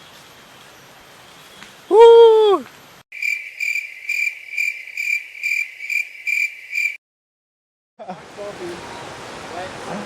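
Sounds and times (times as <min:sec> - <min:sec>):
insect calling in pulses: 0:03.2 - 0:07.0.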